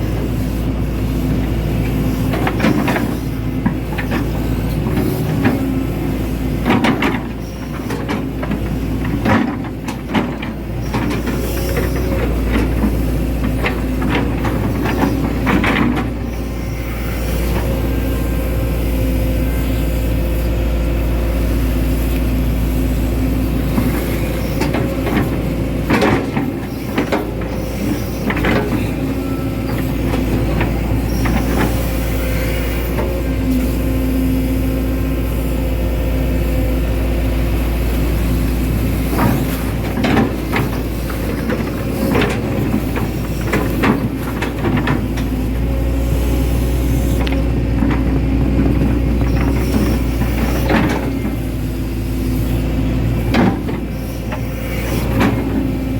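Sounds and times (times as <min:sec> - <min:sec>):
excavator diesel engine running: 0:00.0 - 0:55.9
hydraulic whine: 0:00.0 - 0:55.9.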